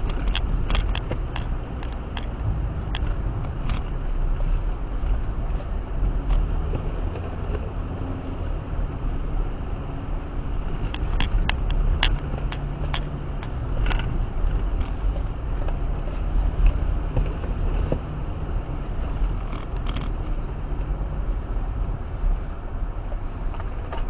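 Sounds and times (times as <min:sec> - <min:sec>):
sharp clicks: 0:00.0 - 0:04.0, 0:10.8 - 0:15.8
car engine droning: 0:00.0 - 0:24.0.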